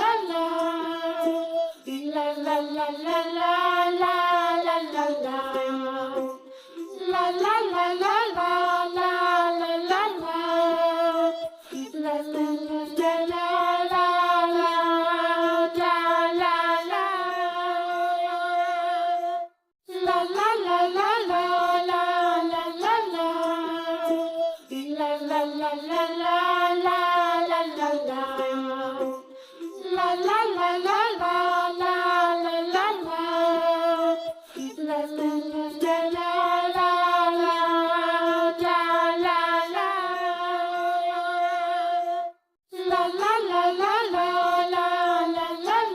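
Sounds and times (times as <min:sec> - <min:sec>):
child-like voice singing: 0:00.0 - 0:45.9.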